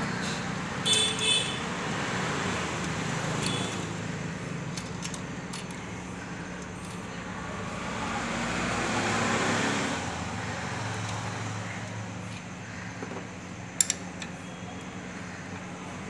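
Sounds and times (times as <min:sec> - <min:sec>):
vehicle passing by: 0:01.6 - 0:04.8, 0:06.0 - 0:12.3.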